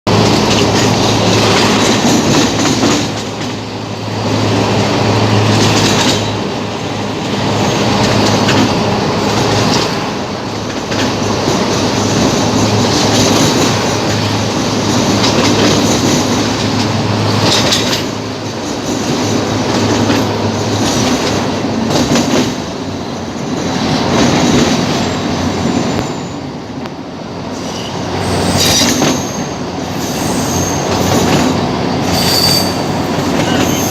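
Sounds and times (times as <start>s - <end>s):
train rumbling on rails: 0.0s - 33.9s
train wheels squealing: 24.9s - 26.6s, 27.5s - 33.9s.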